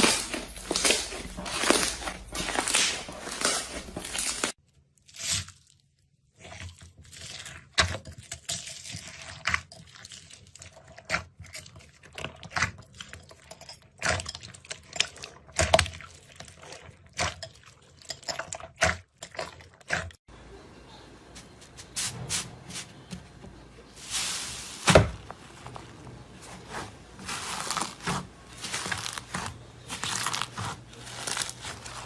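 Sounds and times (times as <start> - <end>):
crunchy material being crushed: 0.0 - 5.8, 24.0 - 32.0.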